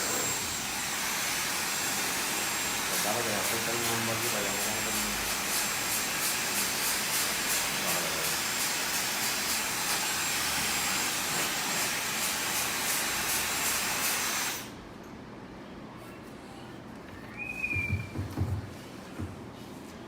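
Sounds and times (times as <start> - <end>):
hair dryer blowing: 0.0 - 14.8.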